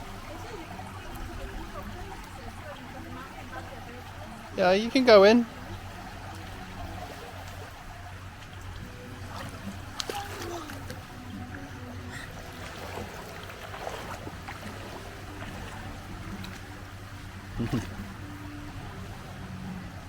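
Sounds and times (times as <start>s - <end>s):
water splashing and lapping: 0.0s - 20.0s
sharp small splashes: 8.4s - 11.1s, 12.3s - 16.8s.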